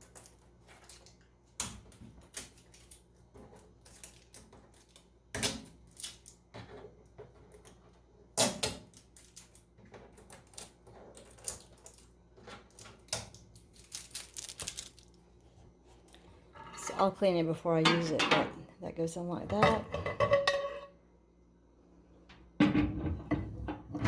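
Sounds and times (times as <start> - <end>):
packing tape and cardboard crackling: 0.0 - 6.5, 8.4 - 15.4.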